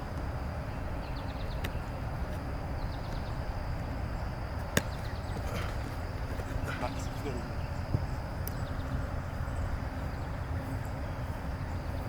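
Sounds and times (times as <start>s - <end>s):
low outdoor rumble: 0.0s - 12.0s
football smacking into hands: 4.7s - 6.8s.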